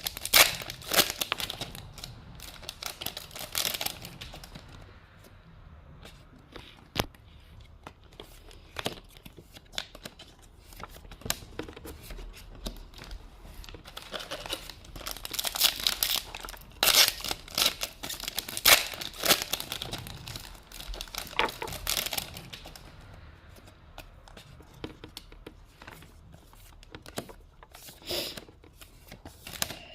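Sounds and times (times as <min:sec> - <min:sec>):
foil wrapper crinkling and tearing: 0:00.0 - 0:04.6, 0:13.6 - 0:22.8.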